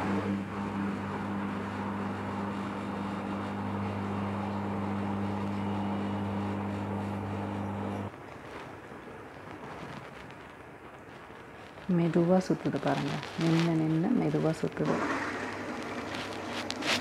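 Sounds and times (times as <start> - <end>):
washing machine humming: 0.0 - 9.1, 13.3 - 17.0.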